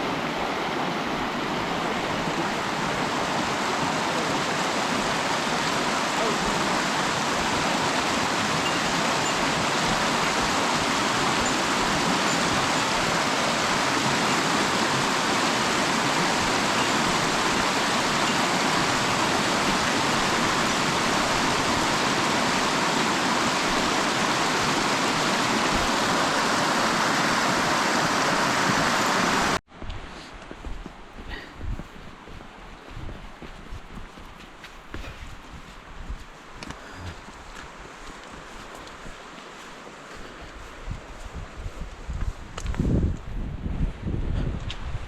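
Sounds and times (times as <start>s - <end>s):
stream water rushing: 0.0s - 29.6s, 36.4s - 41.3s.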